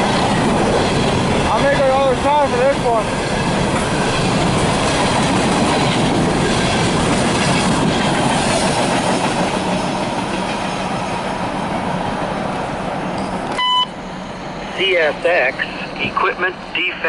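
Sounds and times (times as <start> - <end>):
train wheels clattering over rails: 0.0 - 13.6.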